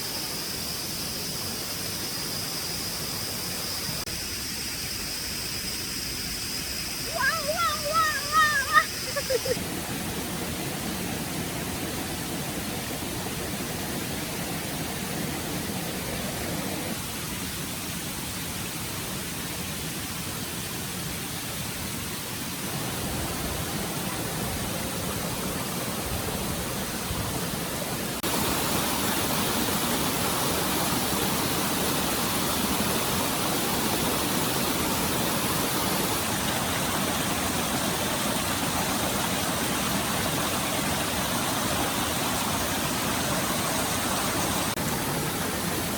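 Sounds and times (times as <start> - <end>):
stream water running: 0.0 - 45.9.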